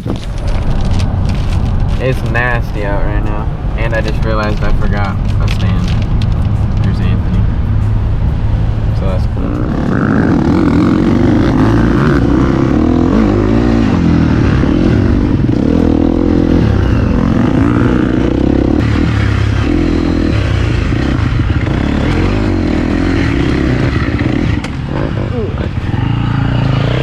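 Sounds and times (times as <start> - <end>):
dirt bike engine revving: 9.0 - 27.0.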